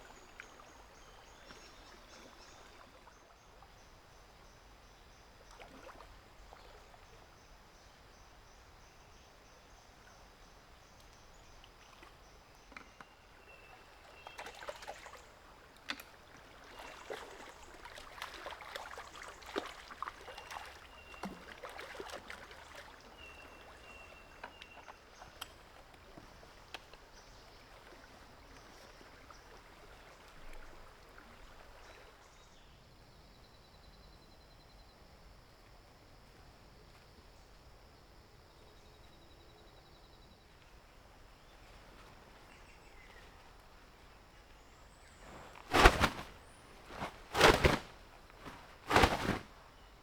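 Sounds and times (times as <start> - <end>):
faint high hiss: 26.4 - 50.0.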